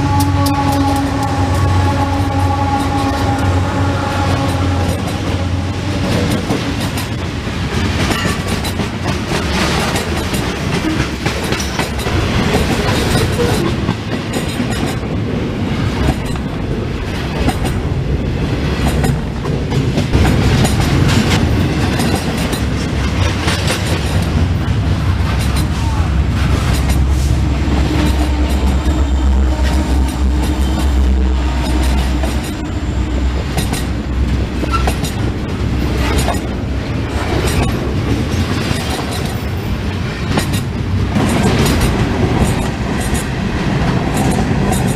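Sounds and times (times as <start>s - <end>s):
freight train cars rolling past: 0.0s - 44.9s.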